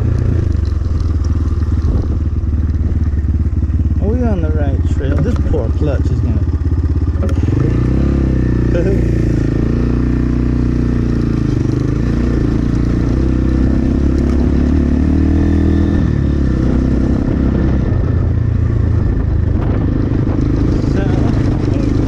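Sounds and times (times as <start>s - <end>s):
wind noise on microphone: 0.0s - 5.6s, 14.9s - 22.0s
dirt bike engine running: 0.0s - 22.0s.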